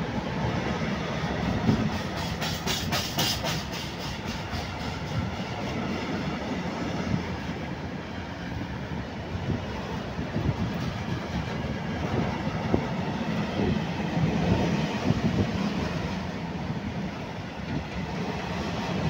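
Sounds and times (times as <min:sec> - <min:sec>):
train wheels rumbling on rails: 0:00.0 - 0:19.0
wheels clacking over rail joints: 0:01.4 - 0:05.9.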